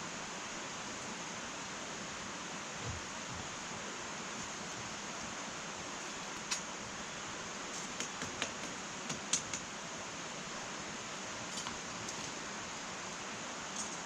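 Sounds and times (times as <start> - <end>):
wood fire crackling and popping: 7.9 - 9.7.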